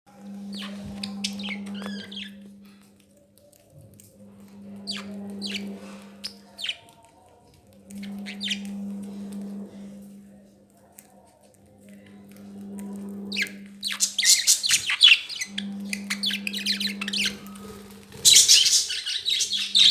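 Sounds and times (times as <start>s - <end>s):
steady low hum: 0.1s - 19.9s
budgerigars chirping: 4.9s - 6.8s, 13.3s - 19.9s.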